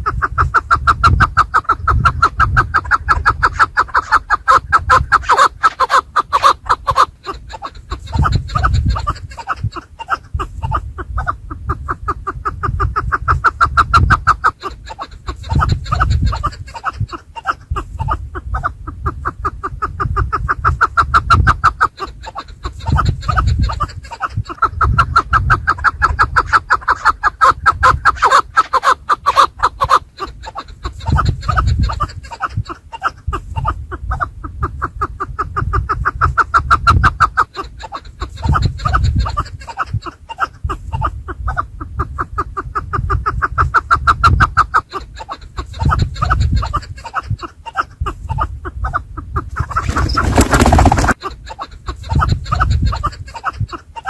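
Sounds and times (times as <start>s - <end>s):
partridges clucking: 49.7s - 51.2s.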